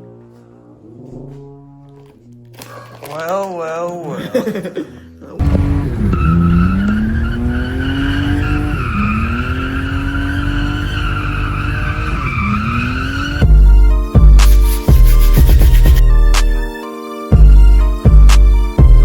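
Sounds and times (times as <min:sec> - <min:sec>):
tyre squeal: 0:05.4 - 0:13.5
car engine accelerating hard: 0:05.4 - 0:13.6
loud bass-heavy music: 0:13.4 - 0:16.7.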